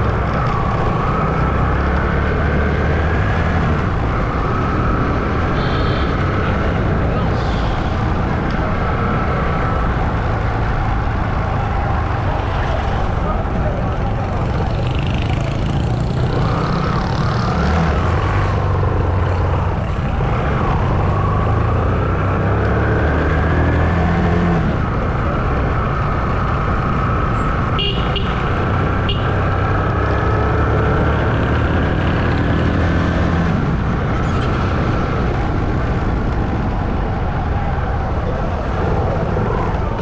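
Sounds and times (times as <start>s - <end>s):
horn toots: 5.6s - 6.4s.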